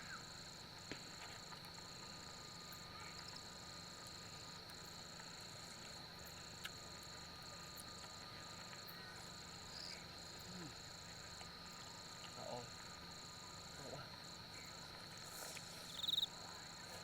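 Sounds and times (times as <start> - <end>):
insect steady high trill: 9.6 - 16.4.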